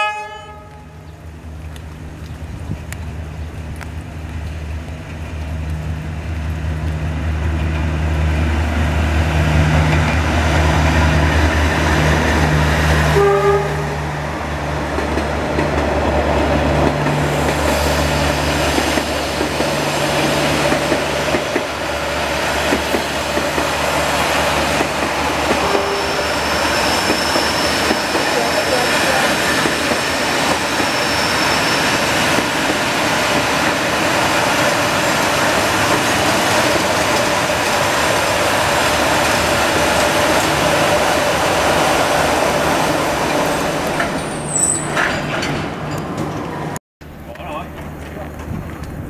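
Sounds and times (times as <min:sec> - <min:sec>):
train horn toot: 0:00.0 - 0:01.0, 0:13.1 - 0:14.1, 0:25.6 - 0:27.8
train wheels clattering on rail: 0:14.9 - 0:42.1, 0:42.7 - 0:49.0.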